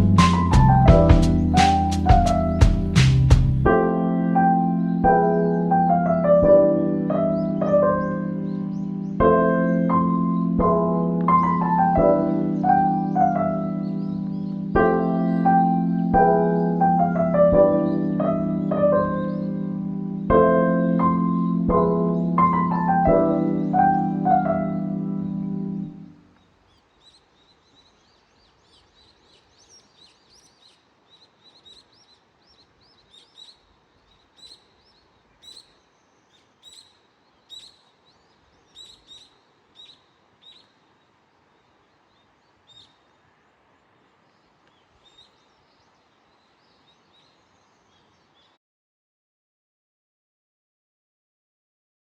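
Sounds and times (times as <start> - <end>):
background hiss: 0.0 - 3.8, 6.6 - 20.3, 23.4 - 48.6
piano music: 0.0 - 26.2
bird chirps: 11.3 - 16.8, 23.2 - 43.2, 43.8 - 48.6.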